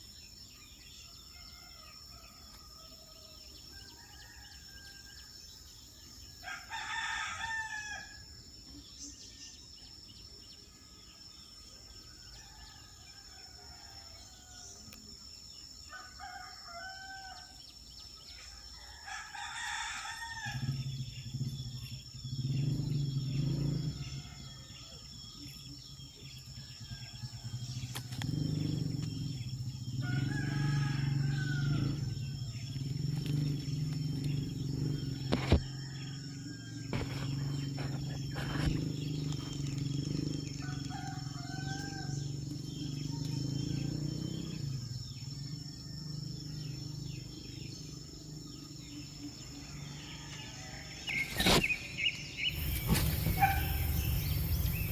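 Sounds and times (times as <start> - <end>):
insect-like drone: 0.0 - 54.9
birds chirping: 13.8 - 54.9.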